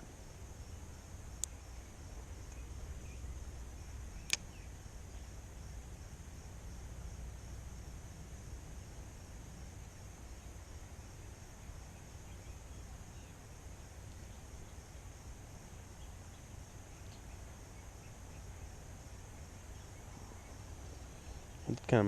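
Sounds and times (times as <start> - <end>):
high insect drone: 0.0 - 22.0
faint chirps: 0.5 - 5.4, 10.3 - 22.0.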